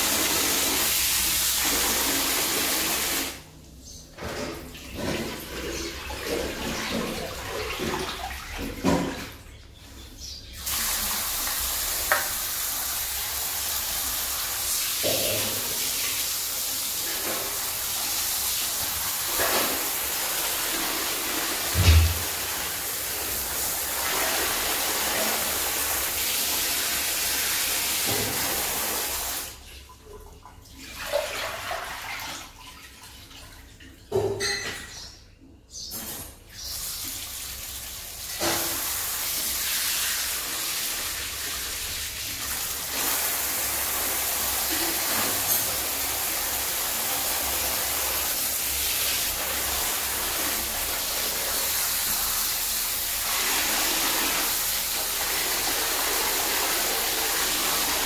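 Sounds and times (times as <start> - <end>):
running water rushing: 10.6 - 29.6.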